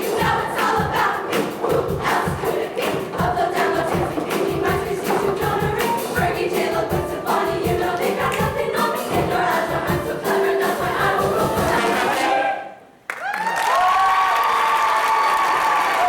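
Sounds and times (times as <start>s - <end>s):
instrumental backing with drum beat: 0.0s - 12.2s
choir singing: 0.0s - 12.9s.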